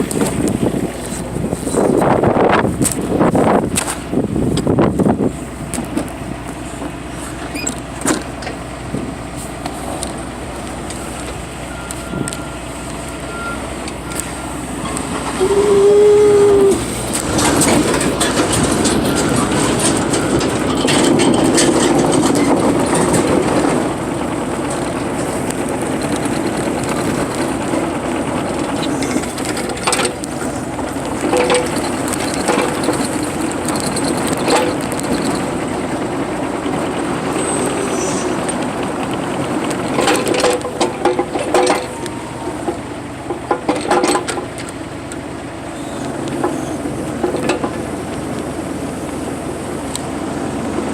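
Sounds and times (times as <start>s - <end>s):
excavator diesel engine running: 0.0s - 50.9s
short whining tone: 13.2s - 17.3s.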